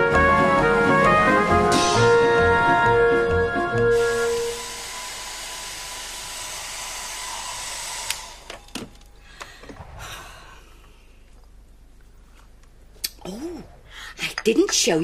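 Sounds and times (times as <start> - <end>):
hair dryer running: 1.8 - 8.7.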